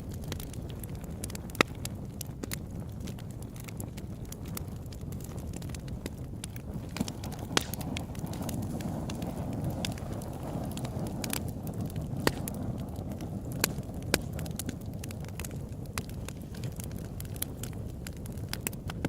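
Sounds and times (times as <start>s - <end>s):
campfire flames rumbling: 0.0s - 19.0s
wood crackling and popping: 0.0s - 19.0s.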